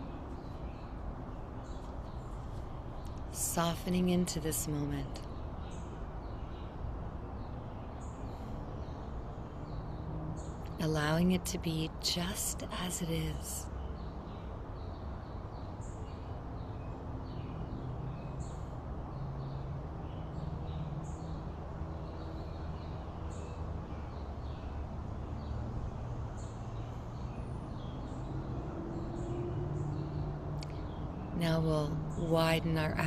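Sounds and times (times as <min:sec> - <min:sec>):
low background hum and hiss: 0:00.0 - 0:09.6, 0:10.6 - 0:14.4.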